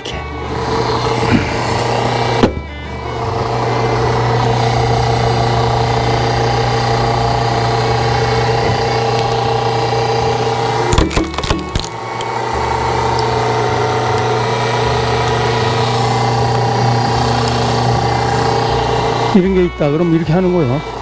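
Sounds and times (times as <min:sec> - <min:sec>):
log splitter motor humming: 0:00.0 - 0:21.0
sharp knocks and cracks: 0:10.7 - 0:13.4.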